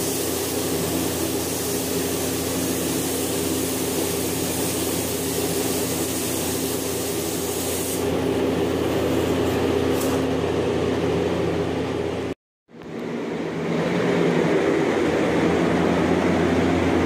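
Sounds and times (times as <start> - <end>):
paint spray gun hissing: 0.0 - 8.2.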